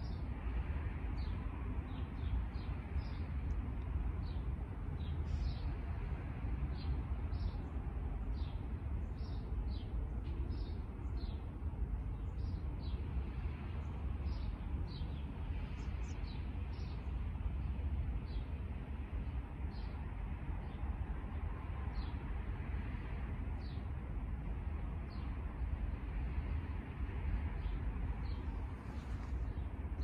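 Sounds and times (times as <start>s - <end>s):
steady low rumble: 0.0s - 30.0s
small birds chirping: 4.2s - 6.0s, 6.7s - 18.6s, 27.5s - 30.0s.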